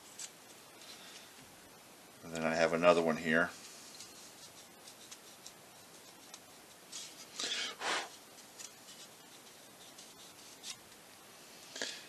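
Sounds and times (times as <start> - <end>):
faint handling ticks: 2.2 - 11.2.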